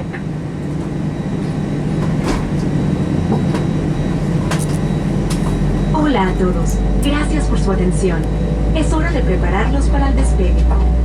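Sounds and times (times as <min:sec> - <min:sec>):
aircraft cabin hum: 0:00.0 - 0:11.0
deep rumble: 0:00.0 - 0:11.0.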